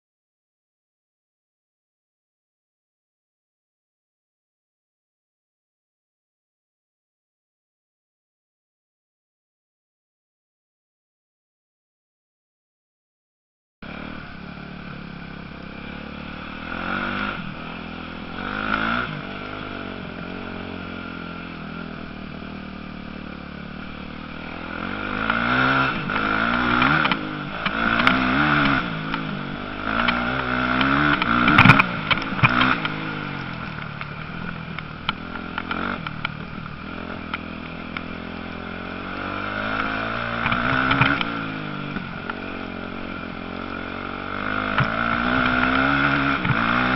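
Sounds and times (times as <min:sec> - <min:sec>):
motocross bikes revving past: 0:13.8 - 0:46.9.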